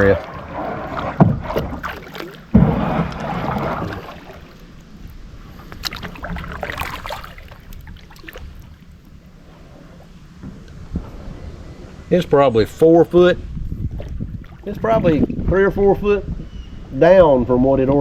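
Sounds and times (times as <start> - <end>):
paddle splashing in water: 0.0 - 12.2, 13.7 - 15.1.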